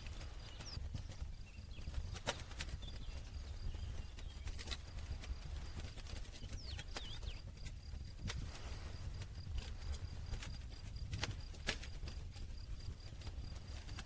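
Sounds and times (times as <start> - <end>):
bird chirps: 0.0 - 7.6
campfire crackling: 0.0 - 14.0.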